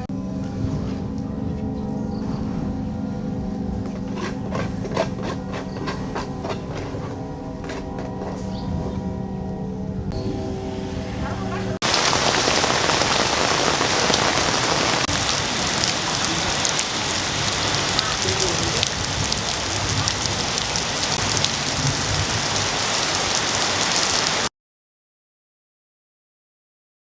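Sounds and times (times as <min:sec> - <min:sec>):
fountain water splashing: 0:11.8 - 0:24.5.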